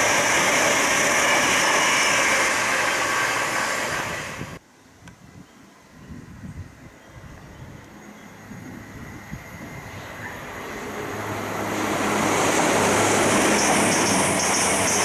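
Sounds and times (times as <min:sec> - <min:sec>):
train passing: 0:00.0 - 0:04.6, 0:08.4 - 0:15.0
wheels clattering on rails: 0:10.8 - 0:15.0.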